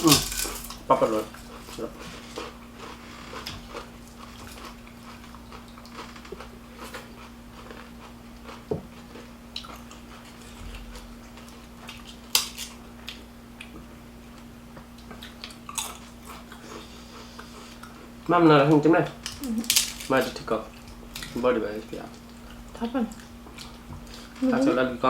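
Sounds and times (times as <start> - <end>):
person chewing: 0.0 - 13.8, 15.0 - 18.2, 22.1 - 24.4
faint steady hum: 0.0 - 25.0.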